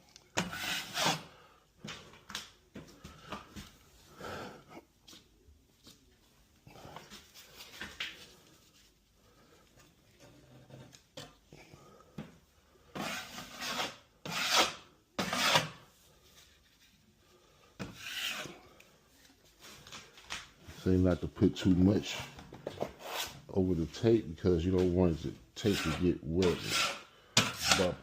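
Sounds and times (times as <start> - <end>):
drywall knife scraping: 0.3 - 1.4, 12.8 - 15.9, 17.8 - 18.6, 22.1 - 23.5, 25.6 - 28.0.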